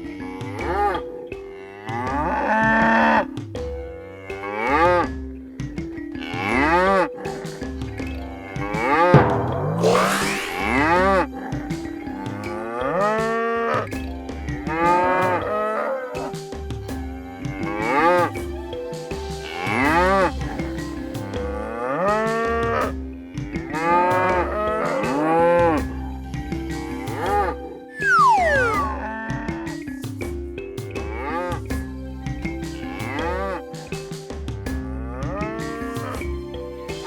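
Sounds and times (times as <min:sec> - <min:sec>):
soft music with held tones: 0:10.4 - 0:37.0.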